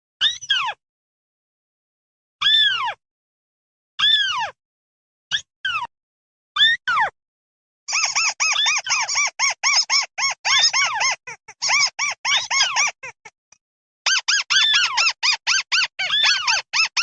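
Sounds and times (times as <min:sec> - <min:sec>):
bird squeaky calls: 0:07.9 - 0:13.2, 0:14.1 - 0:17.0.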